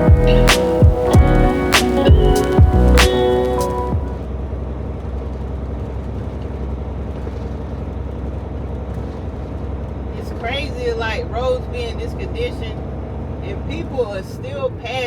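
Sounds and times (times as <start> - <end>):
music track: 0.0 - 4.3
truck engine and road noise: 0.0 - 15.0.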